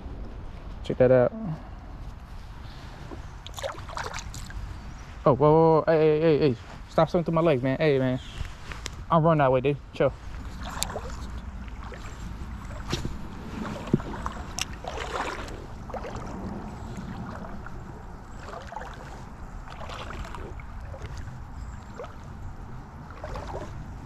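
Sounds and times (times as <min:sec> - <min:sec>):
water sloshing around legs: 0:02.1 - 0:04.8, 0:10.2 - 0:24.0
low steady rumble: 0:09.1 - 0:24.0.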